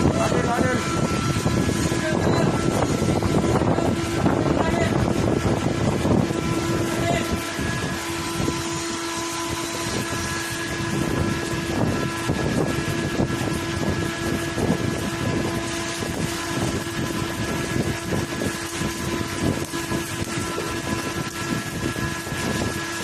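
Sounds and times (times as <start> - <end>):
machinery humming: 0.0 - 23.0
welding arc crackling: 0.0 - 23.0.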